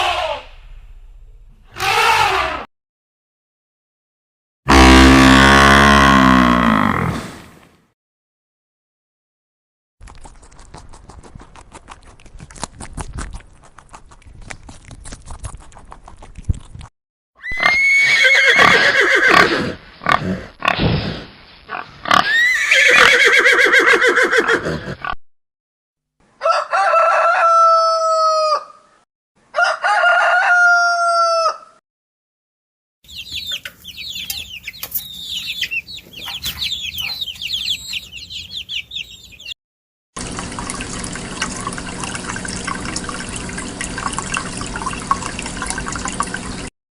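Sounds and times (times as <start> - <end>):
rooster crowing: 26.4 - 28.9, 29.5 - 31.8
chickens squawking: 33.1 - 39.6.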